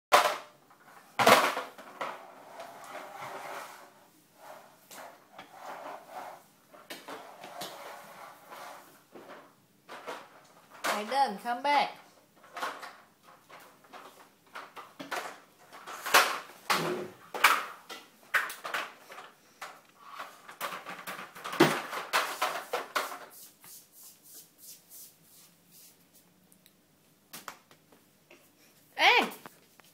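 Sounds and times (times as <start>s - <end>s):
toy truck knocking and clattering: 12.4s - 23.3s.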